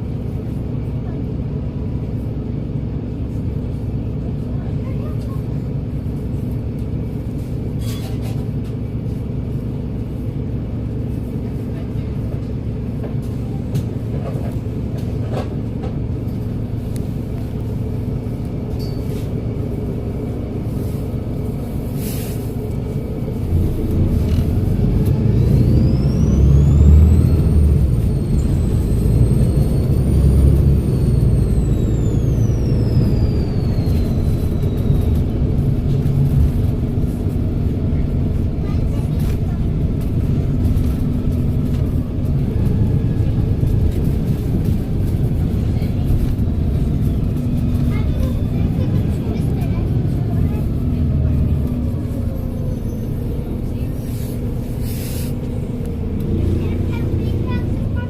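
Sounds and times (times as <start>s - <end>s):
bus diesel engine running: 0.0s - 58.0s
turbo whistle whine: 27.7s - 35.3s.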